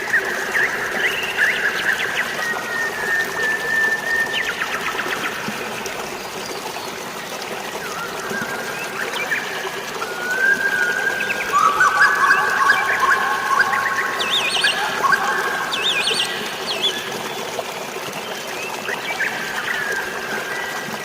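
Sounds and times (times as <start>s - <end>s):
flowing water: 0.0s - 21.0s
birds whistling and chirping: 7.8s - 17.4s.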